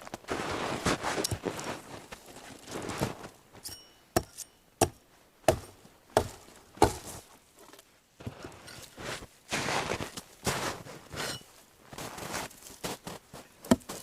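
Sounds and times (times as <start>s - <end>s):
axe chopping firewood: 3.6s - 7.2s, 13.6s - 14.0s.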